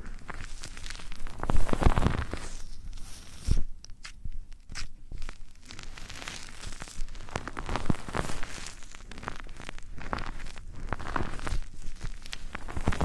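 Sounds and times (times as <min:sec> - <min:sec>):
rubbing and scratching microphone: 0:00.0 - 0:13.0.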